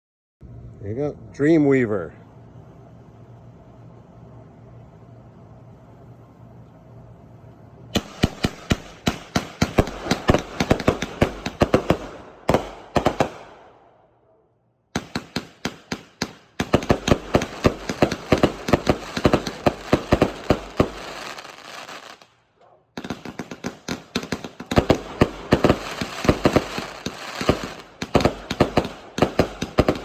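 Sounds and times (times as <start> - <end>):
firework bangs: 8.0 - 13.8, 15.0 - 22.3, 23.0 - 30.0.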